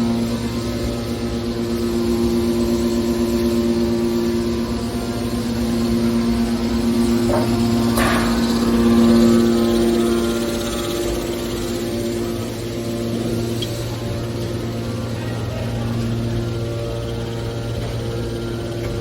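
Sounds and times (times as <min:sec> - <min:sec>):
hydraulic baler humming: 0:00.0 - 0:19.0.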